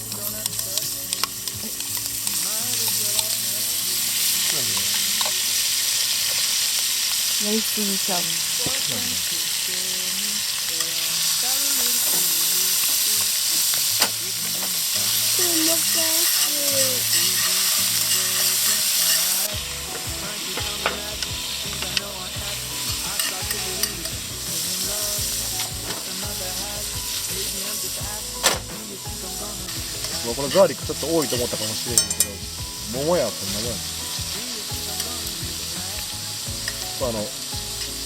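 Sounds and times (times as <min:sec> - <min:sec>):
food sizzling in a pan: 0:00.0 - 0:38.0.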